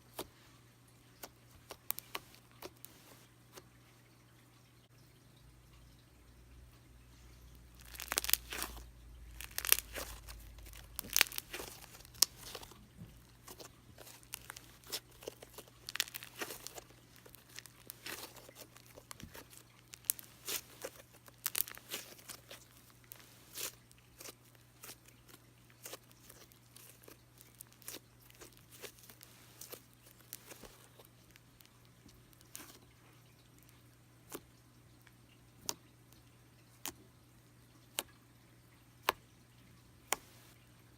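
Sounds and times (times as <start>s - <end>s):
slime crackling and popping: 1.2s - 3.2s, 7.7s - 32.8s.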